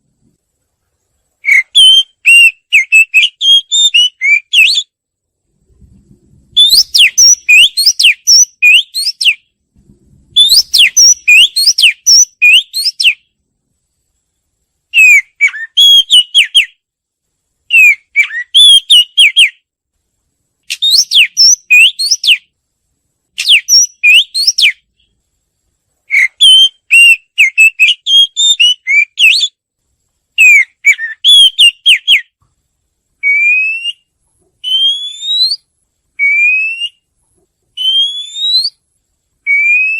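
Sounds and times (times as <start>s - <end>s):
bird whistled song: 1.4s - 5.0s, 6.5s - 9.5s, 10.3s - 13.4s, 14.9s - 16.8s, 17.7s - 19.6s, 20.6s - 22.5s, 23.4s - 25.2s, 26.1s - 29.6s, 30.4s - 32.4s, 33.2s - 37.1s, 37.8s - 38.8s, 39.4s - 39.9s.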